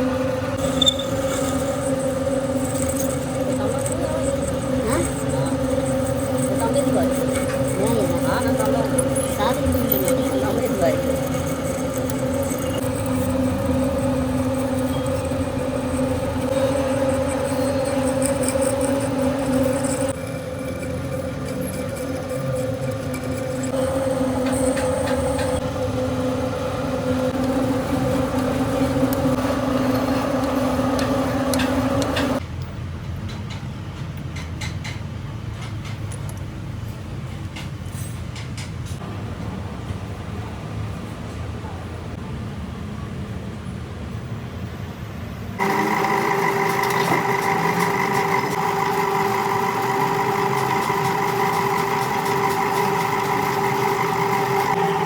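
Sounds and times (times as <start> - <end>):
lathe humming: 0.0 - 32.4, 45.6 - 55.0
quiet machine noise: 0.0 - 32.4, 45.6 - 55.0.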